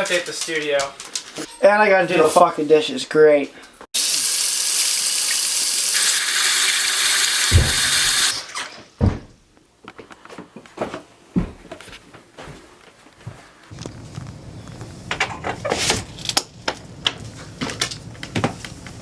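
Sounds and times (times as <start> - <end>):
tap running into sink: 7.4 - 8.3.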